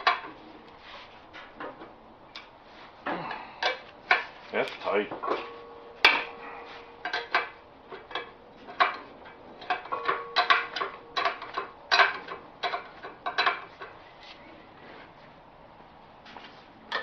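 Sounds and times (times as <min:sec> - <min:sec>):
steel wrenches clanking on bolts: 0:03.6 - 0:14.0.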